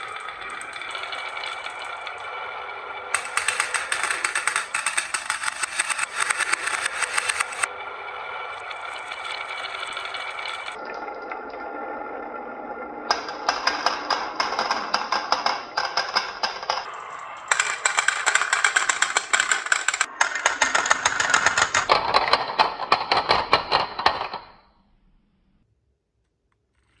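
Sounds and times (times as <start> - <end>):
marbles clattering down wooden run: 3.1 - 7.7, 13.1 - 24.5.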